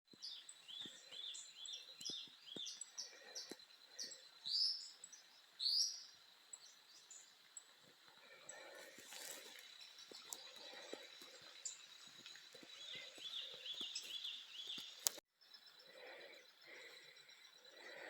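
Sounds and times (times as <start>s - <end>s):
bird chirping: 0.1s - 18.0s
faint clicks: 13.8s - 15.2s.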